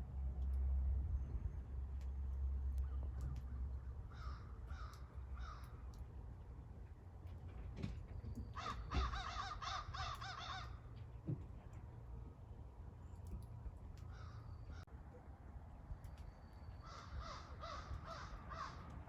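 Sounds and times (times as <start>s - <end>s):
crows cawing: 2.8s - 6.0s, 8.5s - 10.9s, 14.1s - 14.8s, 16.8s - 19.0s.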